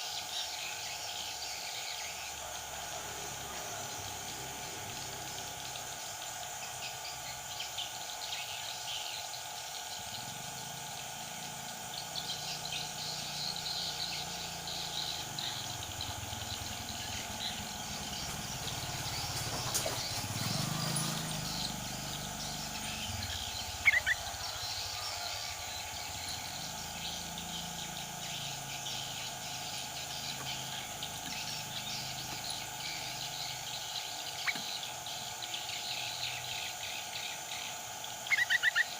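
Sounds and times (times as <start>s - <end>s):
insects: 0.0s - 38.9s
bulbuls chirping: 9.9s - 38.9s.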